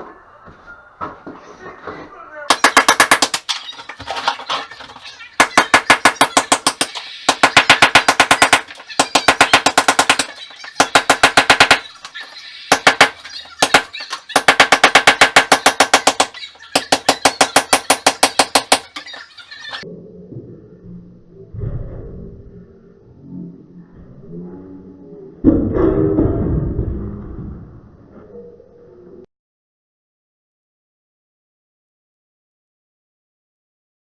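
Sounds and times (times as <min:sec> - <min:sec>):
power hammer chiselling masonry: 0:02.5 - 0:04.3, 0:05.4 - 0:19.1.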